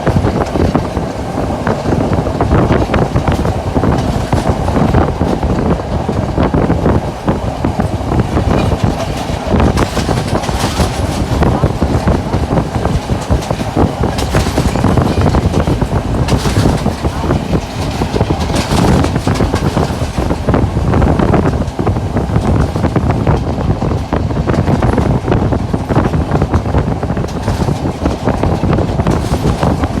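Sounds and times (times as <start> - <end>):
train rumbling on rails: 0.0 - 30.0.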